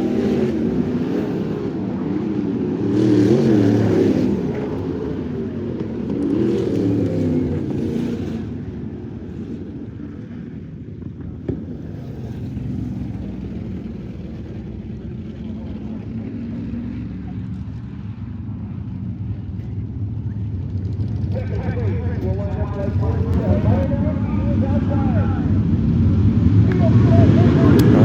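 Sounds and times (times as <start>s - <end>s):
race car engine revving: 0.0s - 8.9s, 20.9s - 28.0s.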